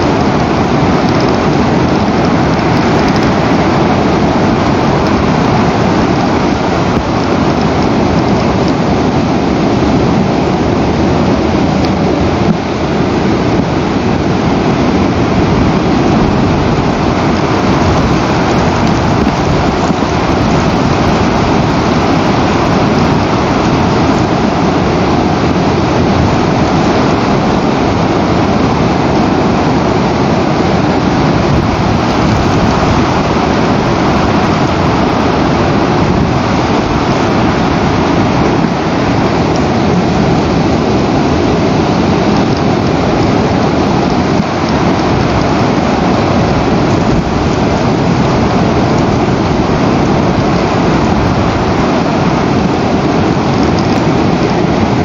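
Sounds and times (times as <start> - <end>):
rushing wind of rough weather: 0.0 - 55.0.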